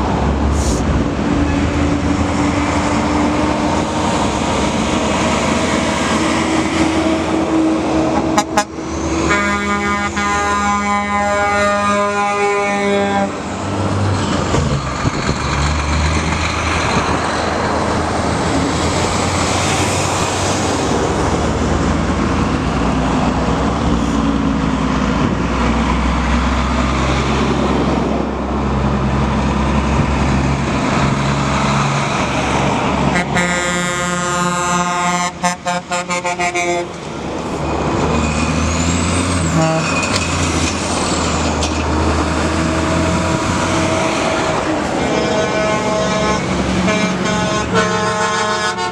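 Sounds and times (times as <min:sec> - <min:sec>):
diesel trucks driving past: 0:00.0 - 0:48.9
air horn blasts: 0:08.2 - 0:13.4, 0:33.1 - 0:37.0, 0:39.5 - 0:39.9, 0:43.9 - 0:48.9.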